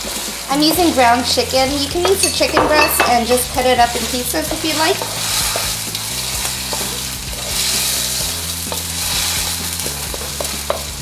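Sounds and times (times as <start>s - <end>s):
meat sizzling in oil: 0.0s - 11.0s
wooden spatula scraping and tapping: 3.9s - 5.8s, 6.4s - 9.4s.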